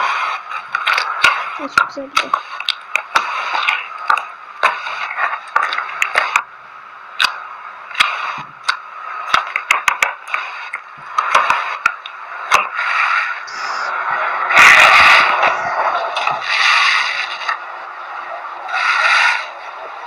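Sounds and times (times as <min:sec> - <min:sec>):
sharp clicks and pops: 0:00.5 - 0:06.5, 0:07.2 - 0:12.8.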